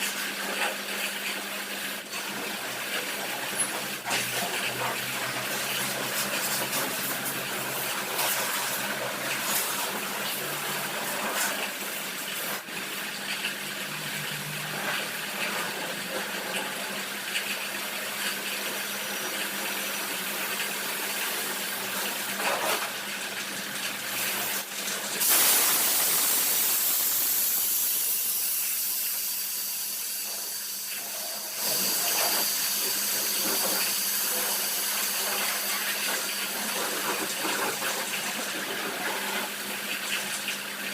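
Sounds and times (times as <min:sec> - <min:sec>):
pressure washer spraying water: 0:02.9 - 0:12.7, 0:24.1 - 0:38.4.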